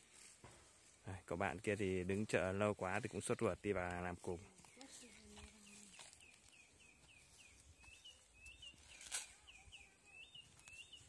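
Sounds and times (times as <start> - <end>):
faint bird chirping: 4.3 - 11.0.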